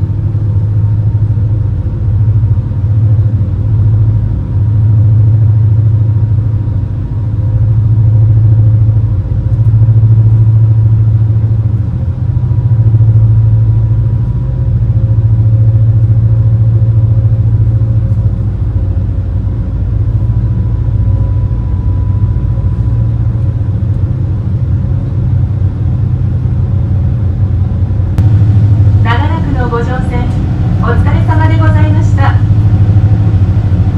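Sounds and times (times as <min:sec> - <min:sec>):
boat engines droning: 0:28.2 - 0:33.9.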